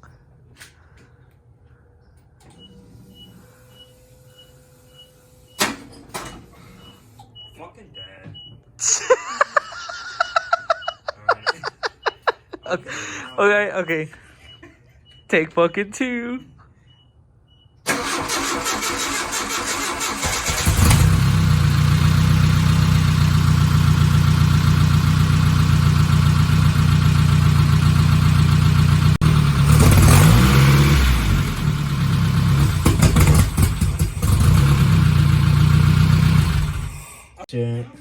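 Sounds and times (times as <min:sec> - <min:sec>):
engine starter cranking: 0:17.9 - 0:22.9, 0:29.6 - 0:37.2
engine running rough loudly: 0:20.5 - 0:37.0.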